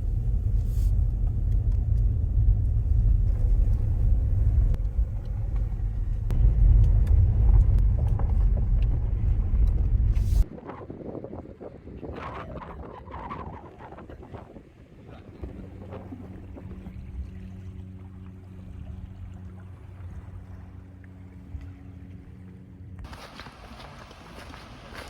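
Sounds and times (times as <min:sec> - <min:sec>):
vehicle rumbling: 0:00.0 - 0:10.6.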